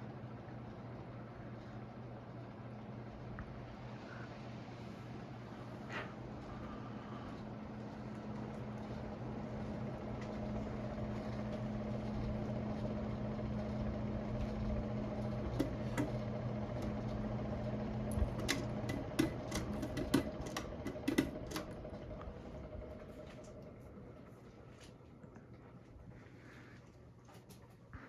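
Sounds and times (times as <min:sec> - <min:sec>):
ceiling fan motor humming: 0:00.0 - 0:28.0
sharp clicks: 0:18.1 - 0:21.8.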